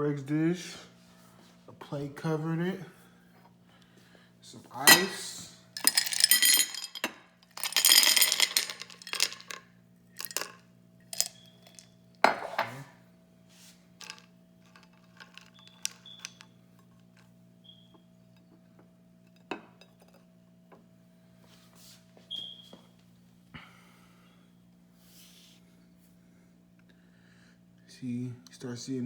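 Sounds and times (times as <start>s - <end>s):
faint steady hum: 0.0s - 29.0s
ice cubes clattering onto plate: 4.9s - 9.6s, 10.2s - 12.8s, 14.0s - 16.4s
ice cubes clinking: 4.9s - 9.6s, 10.2s - 11.9s, 14.0s - 17.3s.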